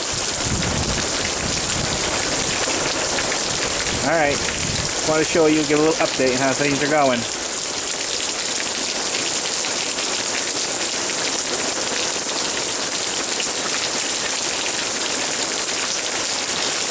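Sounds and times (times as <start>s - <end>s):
heavy rain hissing: 0.0s - 9.1s.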